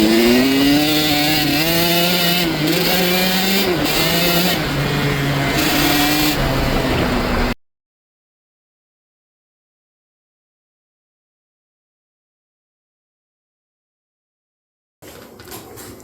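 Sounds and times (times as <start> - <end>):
dirt bike motor revving: 0.0 - 7.6.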